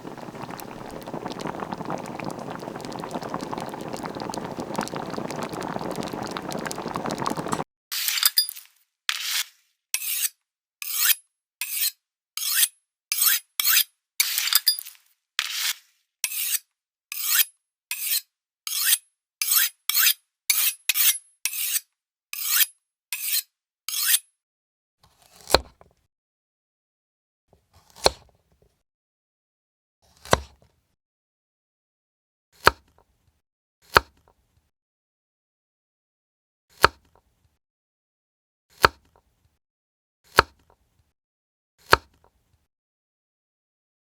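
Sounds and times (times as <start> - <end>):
knife scraping on sharpener: 10.0 - 14.6, 15.4 - 24.2.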